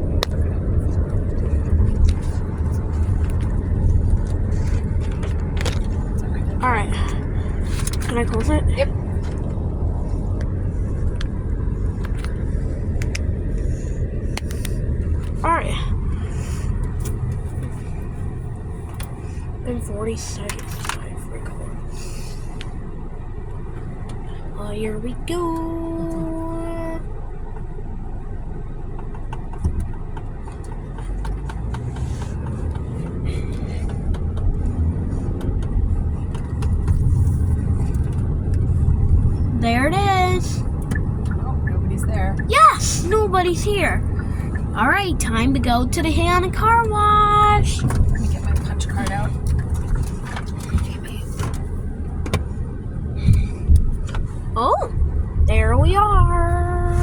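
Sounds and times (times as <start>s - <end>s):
car engine rumble: 0.0s - 57.0s
road noise: 0.0s - 57.0s.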